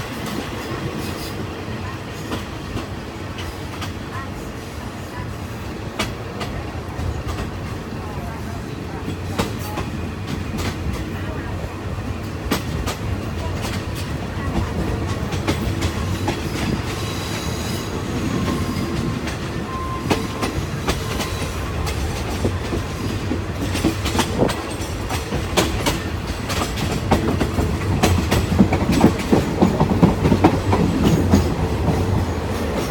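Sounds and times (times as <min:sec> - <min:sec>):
train wheels clicking over rail joints: 0:02.2 - 0:04.1, 0:09.0 - 0:11.2, 0:12.1 - 0:32.9.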